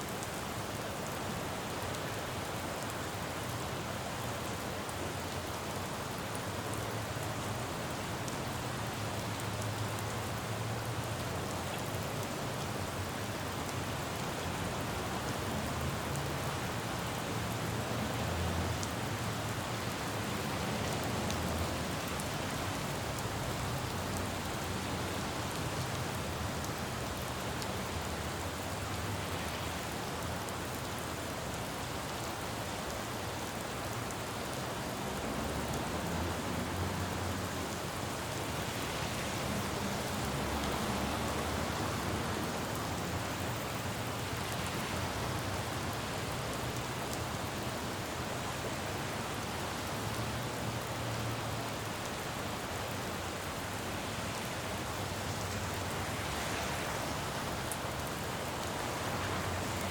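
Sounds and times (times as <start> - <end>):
rain on a road: 0.0 - 59.9
passing traffic rumble: 34.8 - 47.9, 53.9 - 59.9.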